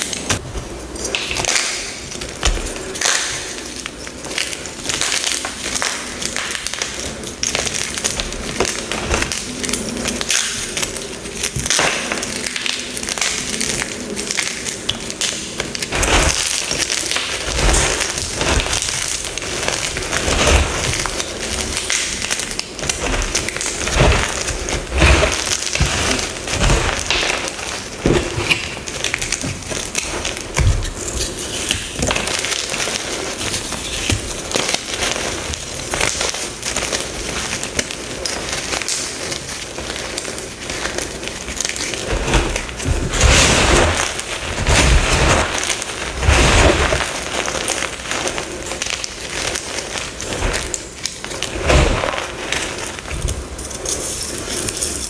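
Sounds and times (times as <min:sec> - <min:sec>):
chalk blocks being crushed: 0:00.0 - 0:55.0.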